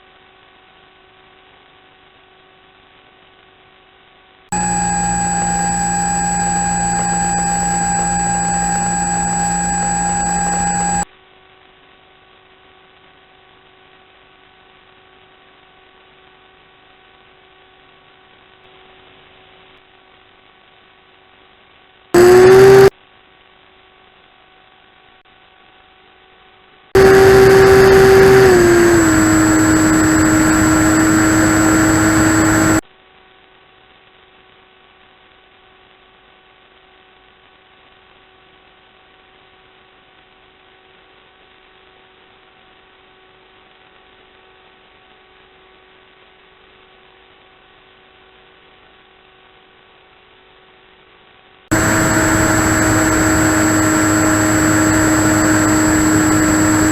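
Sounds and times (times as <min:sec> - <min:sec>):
electric motor and propeller whine: 0:04.6 - 0:11.1, 0:22.2 - 0:22.9, 0:27.0 - 0:32.8, 0:51.7 - 0:56.9.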